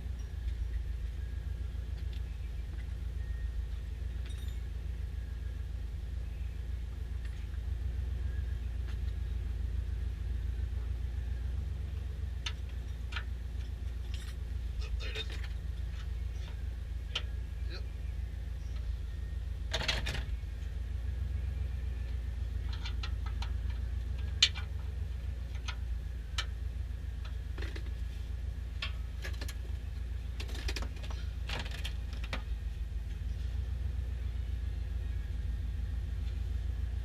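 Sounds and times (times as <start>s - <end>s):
steady low hum: 0.0s - 37.0s
light clicks and clinks of tools: 4.2s - 4.7s, 12.4s - 17.3s, 25.5s - 26.6s.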